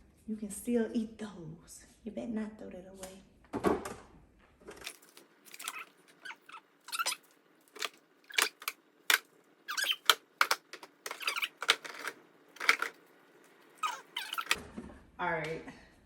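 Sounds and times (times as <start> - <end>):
food containers clicking and knocking: 7.7 - 13.0.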